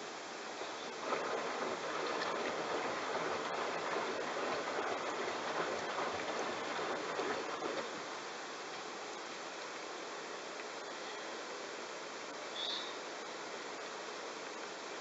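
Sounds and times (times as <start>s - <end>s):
washing machine water sloshing: 0.9s - 8.1s.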